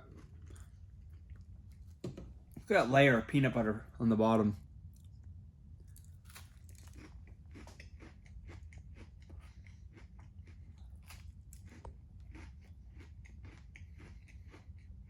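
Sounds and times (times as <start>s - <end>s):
crunchy granola bar chewing: 0.0s - 2.7s, 4.9s - 15.0s
steady low hum: 0.0s - 15.0s.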